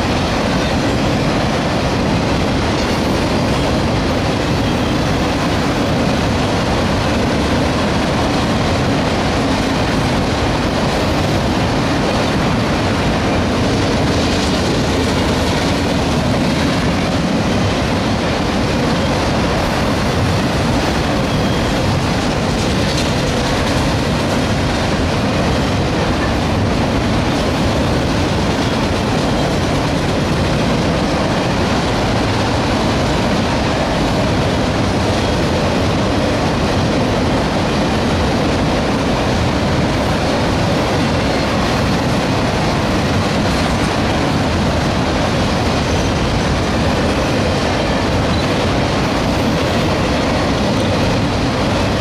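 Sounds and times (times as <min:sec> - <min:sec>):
freight train wheels on rails: 0:00.0 - 0:52.0.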